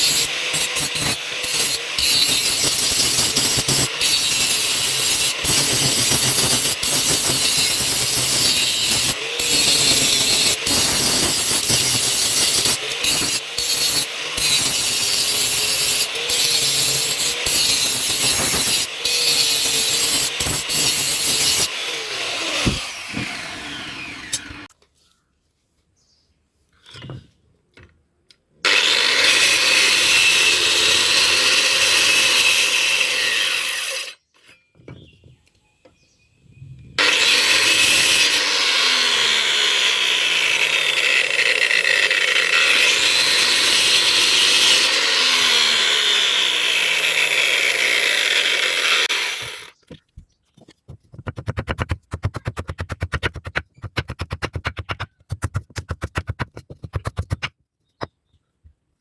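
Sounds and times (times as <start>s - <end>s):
electric grinder grinding steel: 0.0s - 24.7s, 28.7s - 34.2s, 37.0s - 49.8s.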